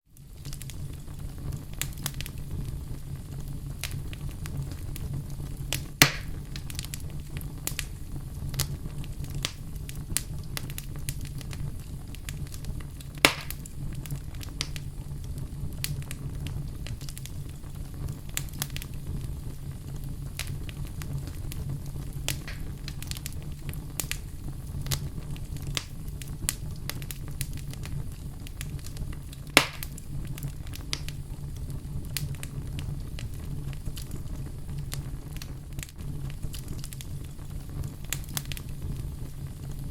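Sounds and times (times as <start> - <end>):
fireplace fire crackling: 0.0 - 39.9
sharp loud fire pops: 5.7 - 6.8, 13.2 - 13.7, 22.3 - 23.3, 29.6 - 30.0.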